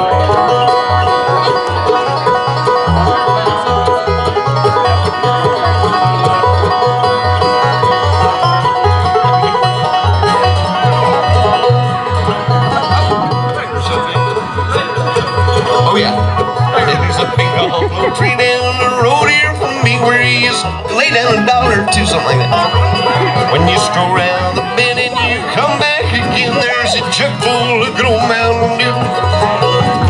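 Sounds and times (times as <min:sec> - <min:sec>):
acoustic guitar: 0:00.0 - 0:30.0
mandolin: 0:00.0 - 0:30.0
rolling banjo: 0:00.0 - 0:30.0
upright bass plucking: 0:00.0 - 0:30.0.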